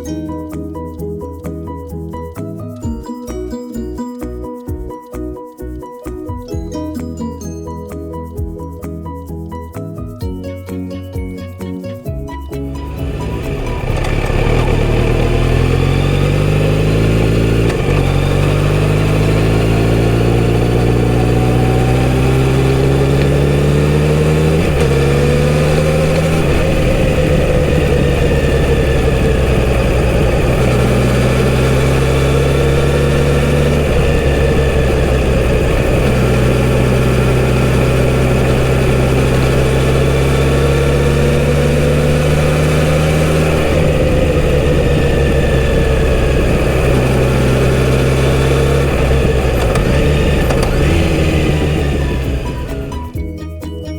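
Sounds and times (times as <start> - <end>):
motorcycle engine accelerating: 12.7 - 53.2.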